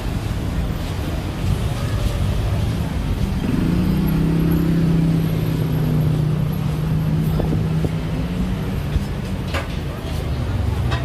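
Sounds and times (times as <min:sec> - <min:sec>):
street traffic engine hum: 0:00.0 - 0:11.0.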